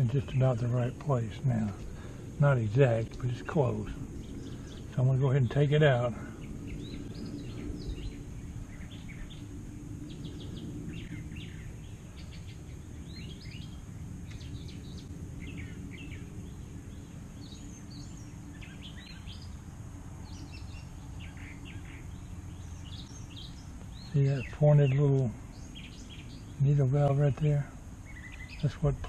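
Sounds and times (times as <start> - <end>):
birds chirping and singing: 0.0 - 29.0
low background rumble: 0.0 - 29.0.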